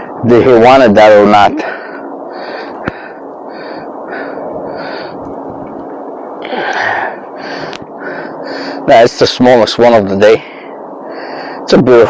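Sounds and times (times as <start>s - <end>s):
man breathing hard: 1.6s - 5.6s, 6.4s - 8.9s, 10.4s - 11.7s.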